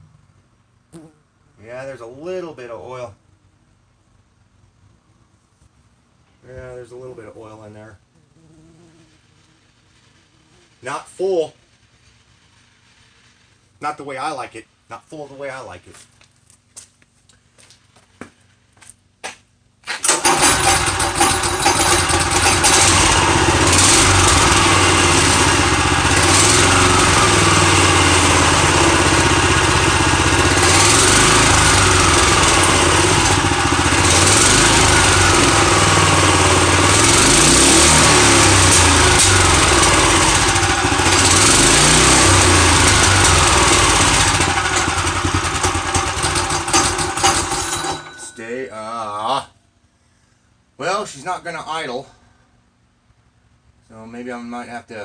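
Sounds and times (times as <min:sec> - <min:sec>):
go-kart engine running fast: 0:20.0 - 0:47.9.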